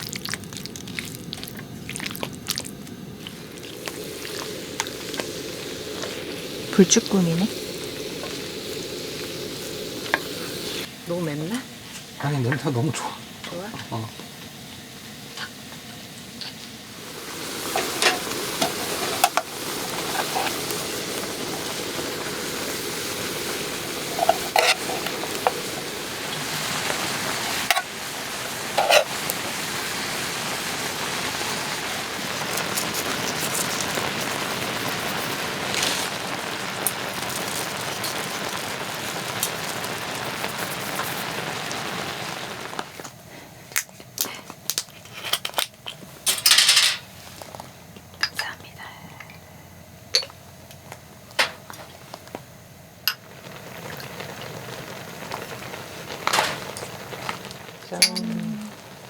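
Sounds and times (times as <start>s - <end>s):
food sizzling in a pan: 0.0s - 48.6s, 49.7s - 59.0s.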